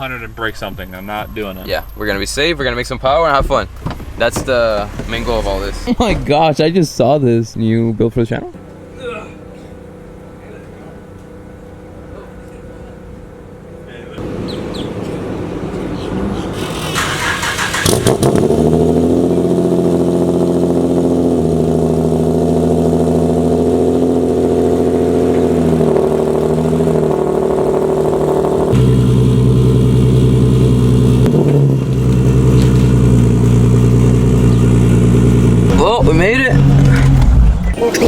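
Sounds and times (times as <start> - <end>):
car engine and exhaust: 0.0 - 38.0.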